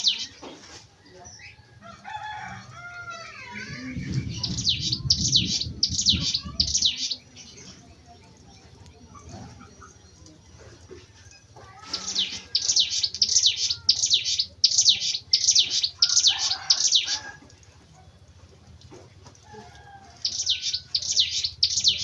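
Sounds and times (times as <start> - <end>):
bird singing sharp downward notes: 3.4 - 7.4, 12.0 - 17.2, 20.3 - 22.0.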